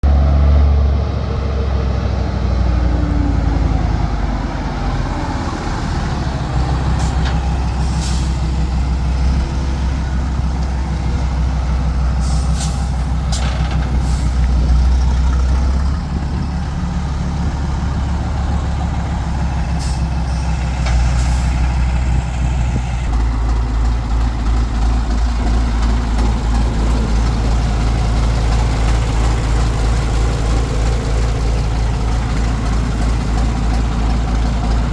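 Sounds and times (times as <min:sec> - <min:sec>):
truck diesel engine running: 0:00.0 - 0:34.9
air brake hisses: 0:07.8 - 0:08.4, 0:12.2 - 0:14.4.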